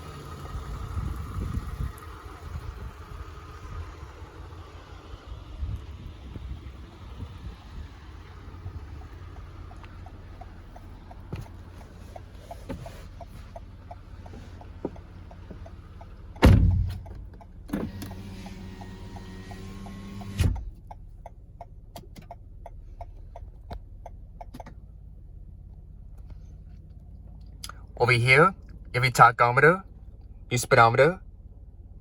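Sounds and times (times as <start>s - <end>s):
window glass thump: 16.4s - 17.0s
car door slamming: 16.4s - 18.4s
power window motor whining: 17.7s - 20.8s.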